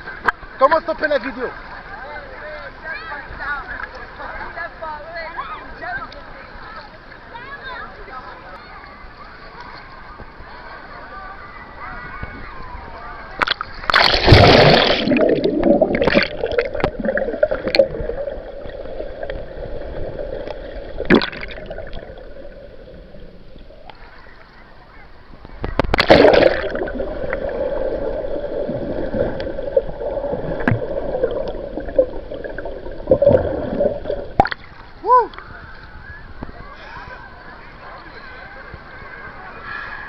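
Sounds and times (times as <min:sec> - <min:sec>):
water splashing rushes: 0:13.4 - 0:24.3, 0:25.5 - 0:35.9
sea water sloshing: 0:13.4 - 0:24.6, 0:25.5 - 0:35.0.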